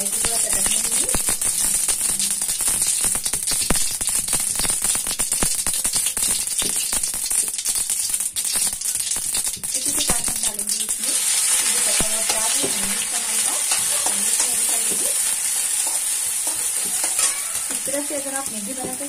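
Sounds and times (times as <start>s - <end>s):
mustard seeds popping in oil: 0.0s - 19.0s
onion sizzling in oil: 0.0s - 19.0s
spatula stirring: 0.1s - 19.0s.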